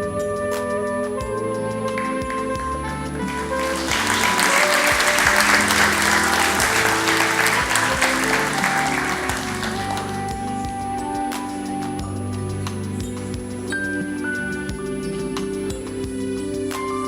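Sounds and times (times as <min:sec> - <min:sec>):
soft instrumental music: 0:00.0 - 0:17.0
audience applauding: 0:01.9 - 0:10.7.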